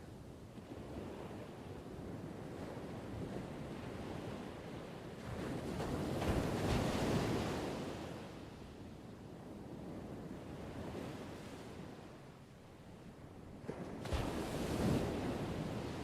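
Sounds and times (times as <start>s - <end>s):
ocean waves breaking: 13.5s - 16.0s.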